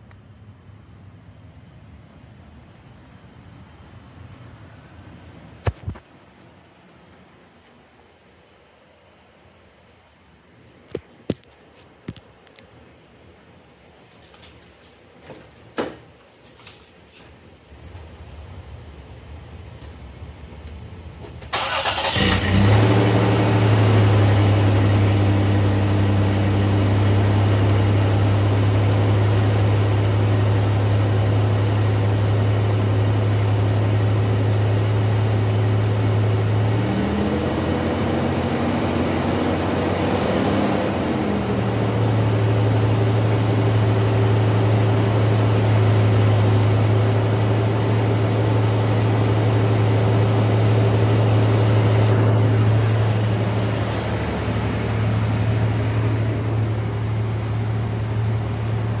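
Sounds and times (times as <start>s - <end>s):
car engine idling: 17.7s - 40.0s, 40.9s - 59.0s
car engine starting: 17.7s - 59.0s.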